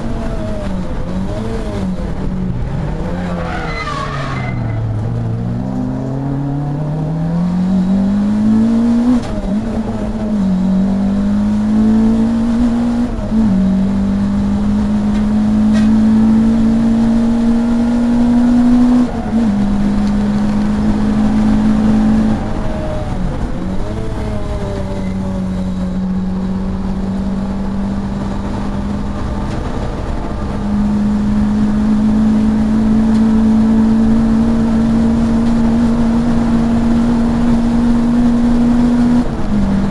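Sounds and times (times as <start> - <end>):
race car engine accelerating: 0.0 - 39.9.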